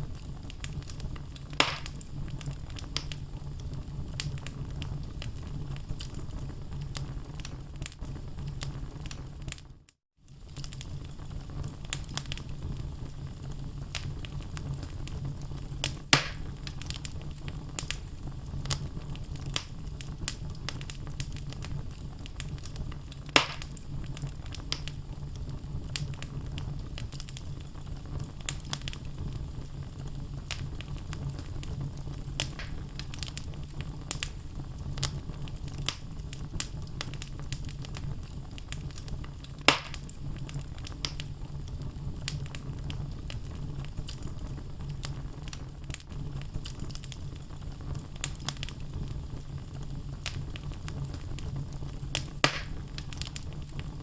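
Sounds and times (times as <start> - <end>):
sharp fire pops: 0.0 - 9.7, 10.3 - 54.0
fire low rumble: 0.0 - 54.0
logs crackling: 0.1 - 5.3, 15.8 - 25.0, 30.4 - 41.3, 52.1 - 54.0.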